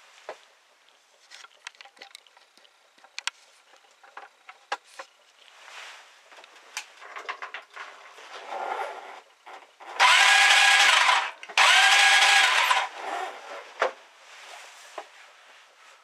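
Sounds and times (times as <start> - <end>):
soft rustle: 4.8 - 7.1, 13.0 - 16.0.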